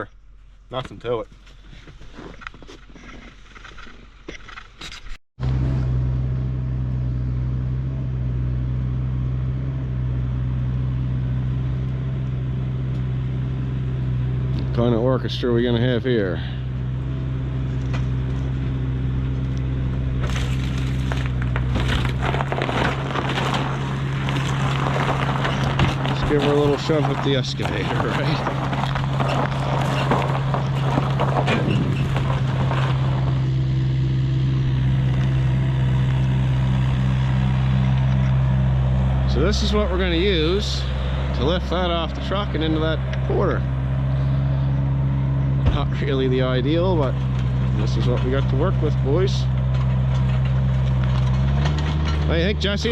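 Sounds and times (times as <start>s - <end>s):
vehicle engine idling: 5.4s - 52.9s
knocks and clatter: 19.8s - 33.6s, 49.4s - 52.3s.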